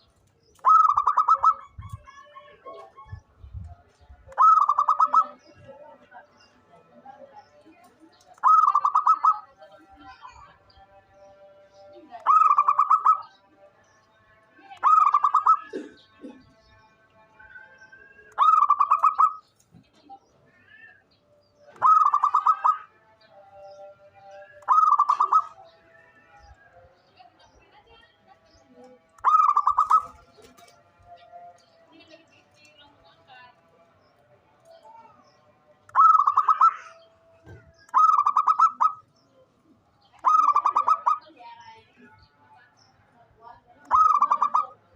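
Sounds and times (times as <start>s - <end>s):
dove cooing: 0.6s - 1.9s, 4.4s - 5.6s, 8.4s - 9.6s, 12.2s - 13.3s, 14.8s - 16.5s, 18.4s - 19.4s, 21.7s - 22.9s, 24.4s - 26.0s, 29.2s - 30.7s, 35.9s - 39.1s, 40.2s - 41.3s, 43.9s - 44.9s.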